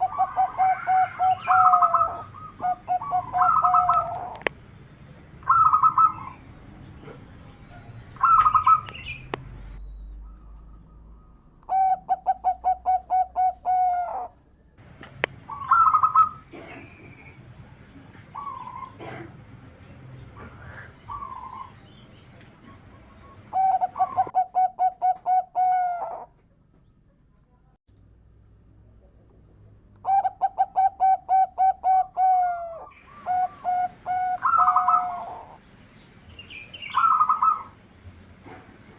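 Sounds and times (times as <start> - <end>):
doves cooing: 0.0 - 4.6, 5.3 - 9.4, 10.1 - 14.4, 15.1 - 26.4, 30.0 - 35.6, 36.8 - 37.8.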